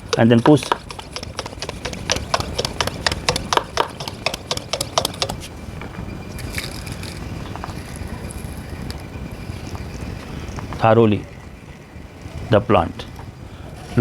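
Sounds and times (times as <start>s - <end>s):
hand pump plastic clicks and knocks: 0.0s - 5.5s.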